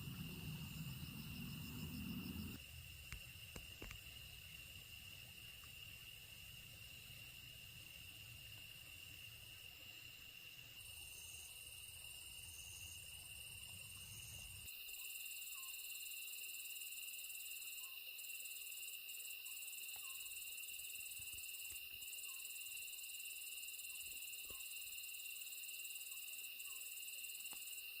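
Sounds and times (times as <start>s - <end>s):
low rumble: 0.0s - 2.6s
high bright insect trill: 0.0s - 28.0s
insects trilling: 0.0s - 28.0s.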